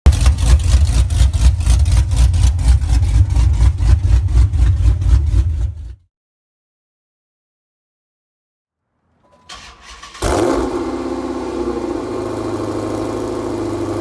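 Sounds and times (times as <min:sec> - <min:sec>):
car engine idling: 0:09.5 - 0:14.0.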